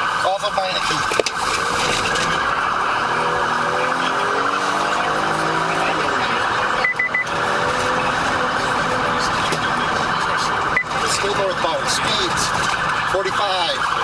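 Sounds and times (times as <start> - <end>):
police siren wailing: 0.0 - 14.0
short high beeps: 6.8 - 7.3.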